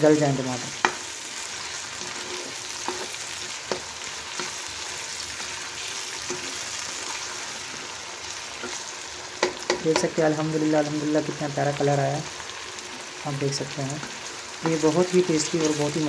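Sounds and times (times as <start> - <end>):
vegetables sizzling in hot oil: 0.0 - 16.0
spatula scraping and tapping pan: 0.8 - 1.1, 1.9 - 4.7, 6.2 - 7.2, 8.6 - 8.8, 9.4 - 10.2.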